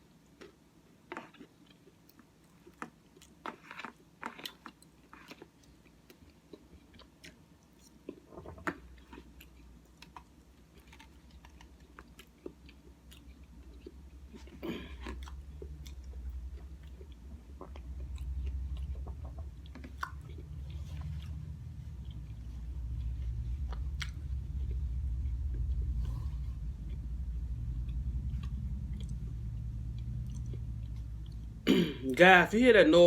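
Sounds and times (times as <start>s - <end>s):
person chewing food: 0.0s - 31.6s
cars passing outside: 15.2s - 33.0s.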